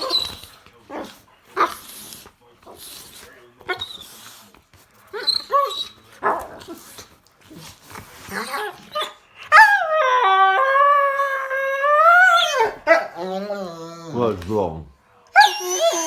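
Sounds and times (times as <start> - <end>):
dog whining yips and grunts: 0.0 - 0.4, 5.2 - 6.0, 8.3 - 14.2, 15.4 - 16.0
dog howling: 8.3 - 14.2, 15.3 - 16.0.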